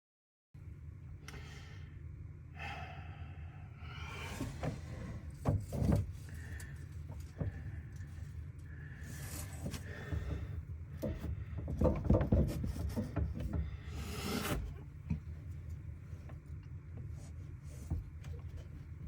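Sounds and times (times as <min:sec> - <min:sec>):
steady low hum: 0:00.6 - 0:19.0
pipe scraping: 0:08.9 - 0:15.1
pipe knocking and clattering: 0:09.9 - 0:13.9.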